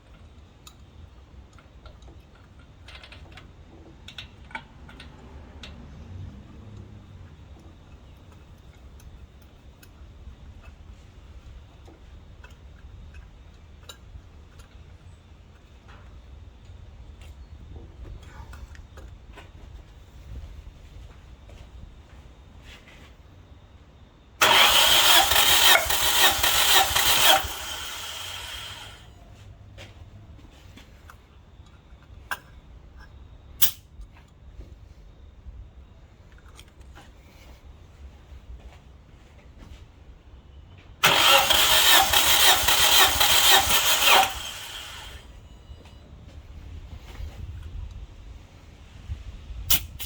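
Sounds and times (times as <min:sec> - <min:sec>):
engine cranking on starter motor: 0:24.4 - 0:29.1, 0:41.0 - 0:45.4.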